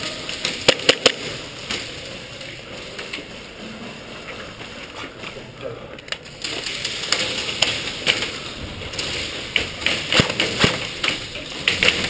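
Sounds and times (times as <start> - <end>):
sharp clicks and knocks: 6.0 - 12.0.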